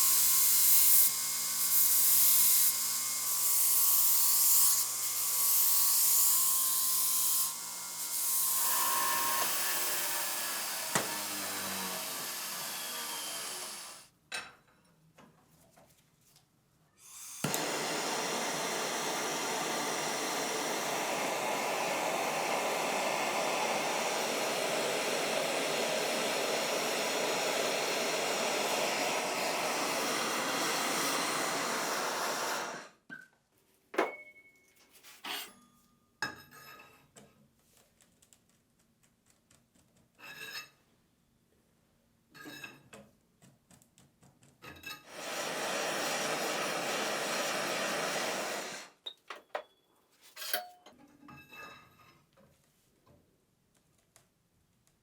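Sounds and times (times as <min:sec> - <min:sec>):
power tool running: 0:00.0 - 0:14.1, 0:17.1 - 0:33.0, 0:45.1 - 0:49.0.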